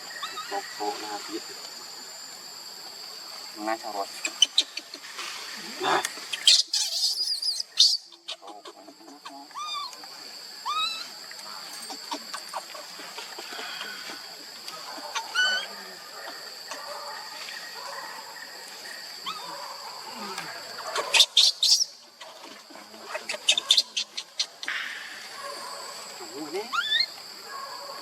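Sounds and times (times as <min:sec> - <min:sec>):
monkey squeaking and squealing: 0:00.2 - 0:00.6, 0:04.2 - 0:05.0, 0:06.3 - 0:09.9, 0:10.6 - 0:11.1, 0:15.2 - 0:15.7, 0:20.9 - 0:22.3, 0:23.1 - 0:24.7, 0:26.7 - 0:27.2.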